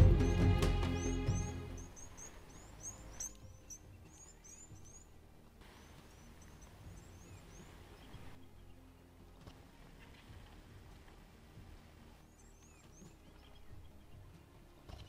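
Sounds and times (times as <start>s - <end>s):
small bird chirps: 0.0s - 8.8s, 12.2s - 15.0s.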